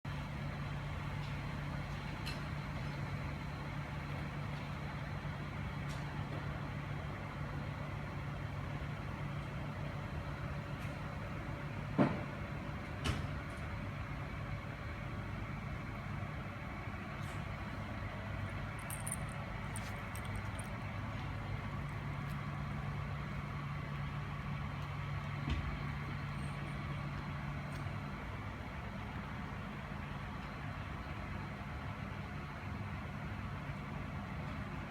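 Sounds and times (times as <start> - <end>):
engine idling hum: 0.1 - 34.9
street noise: 0.1 - 34.9.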